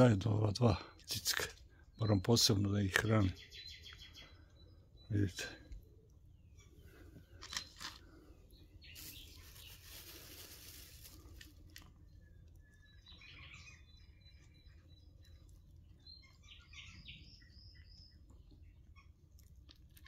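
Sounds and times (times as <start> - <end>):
birds chirping: 0.0 - 19.7
hissing rustle: 8.9 - 11.5.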